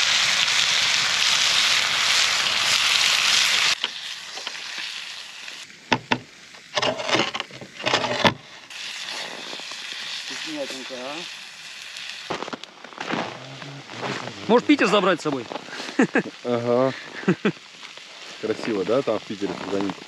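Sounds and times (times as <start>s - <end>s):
fish sizzling in a hot pan: 0.0s - 20.0s
sharp knocks: 5.9s - 6.3s.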